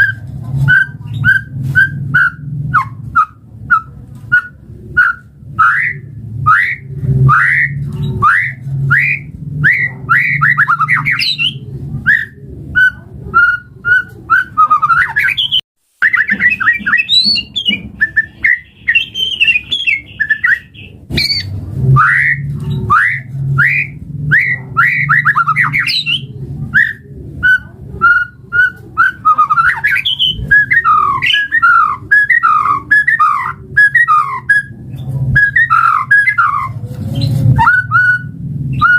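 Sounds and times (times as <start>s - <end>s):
low hum: 0.0s - 13.6s, 16.6s - 29.6s
bird singing whistles and chatter: 0.0s - 38.9s.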